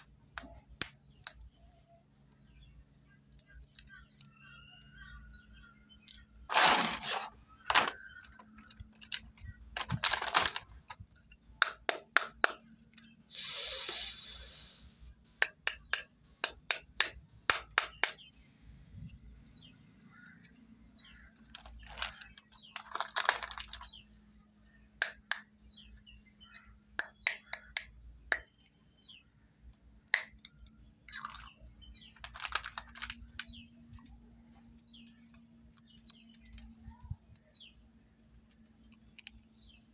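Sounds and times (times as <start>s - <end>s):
plastic pieces clicking: 3.4s - 4.3s, 6.0s - 13.1s, 21.3s - 23.9s, 30.2s - 34.1s
packaging rustling: 6.5s - 8.0s, 9.8s - 10.9s, 21.6s - 23.9s.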